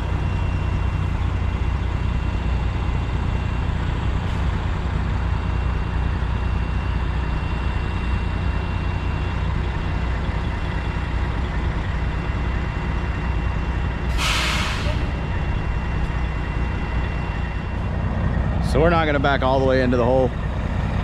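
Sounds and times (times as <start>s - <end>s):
truck diesel engine running: 0.0s - 21.0s
air brakes hissing: 14.0s - 15.4s.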